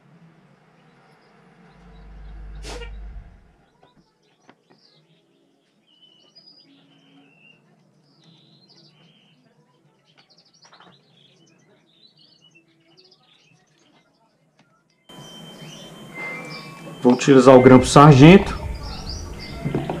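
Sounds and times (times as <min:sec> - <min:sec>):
small birds chirping: 0:00.5 - 0:20.0
board knocking on workbench: 0:19.6 - 0:20.0.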